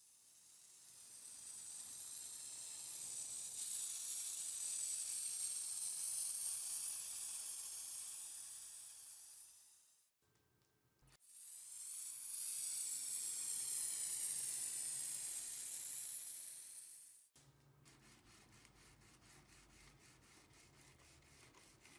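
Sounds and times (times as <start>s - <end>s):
high-pitched spraying hiss: 11.3s - 17.3s.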